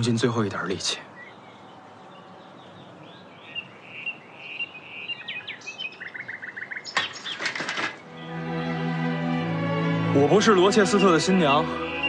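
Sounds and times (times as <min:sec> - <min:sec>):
small birds chirping: 0:00.0 - 0:07.7, 0:10.8 - 0:12.0
faint outdoor background: 0:00.0 - 0:12.0.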